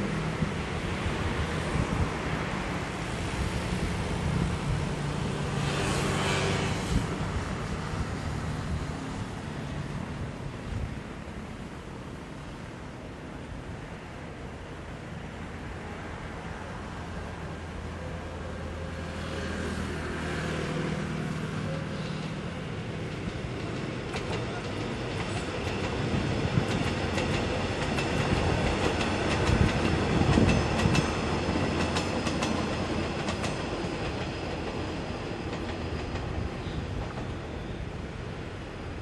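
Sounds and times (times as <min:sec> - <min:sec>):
train rumble: 0:00.0 - 0:39.0
train wheels clicking on rails: 0:22.2 - 0:37.8.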